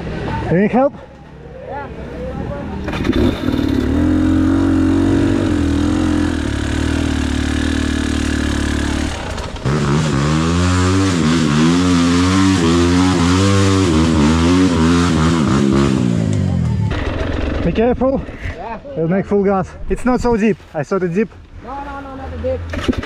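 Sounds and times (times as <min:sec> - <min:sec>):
motorcycle engine revving: 0:02.7 - 0:18.0, 0:22.4 - 0:23.0.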